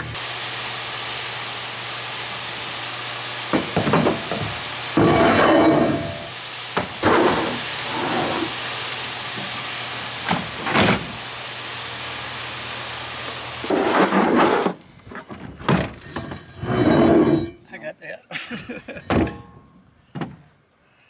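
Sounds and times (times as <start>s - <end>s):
steady hiss: 0.0s - 15.2s.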